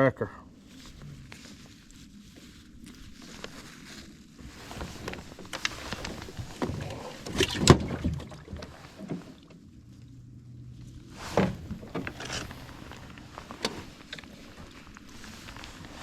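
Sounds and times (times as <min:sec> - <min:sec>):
knocks and rattles in a boat: 0:04.4 - 0:09.9, 0:11.2 - 0:16.0.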